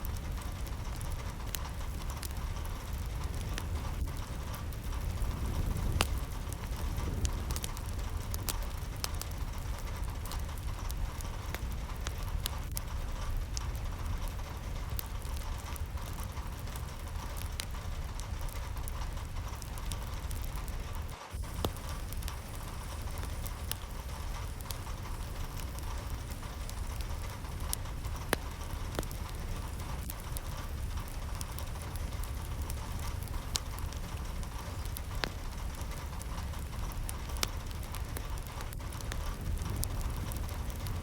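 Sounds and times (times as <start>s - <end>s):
steady rain falling: 0.0s - 41.0s.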